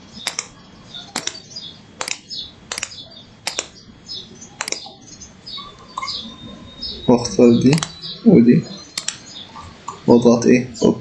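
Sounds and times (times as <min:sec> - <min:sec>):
computer mouse clicking: 0:00.2 - 0:03.8, 0:04.6 - 0:05.0, 0:07.7 - 0:08.0, 0:09.0 - 0:09.3.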